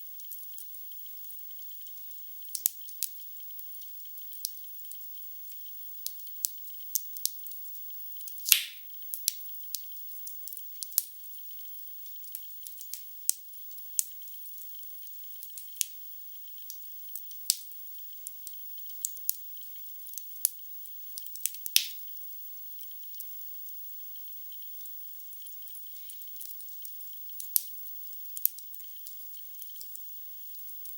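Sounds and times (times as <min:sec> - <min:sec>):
logs crackling in fireplace: 0:08.4 - 0:08.8, 0:21.4 - 0:22.0
loud fire pops: 0:08.5 - 0:08.8.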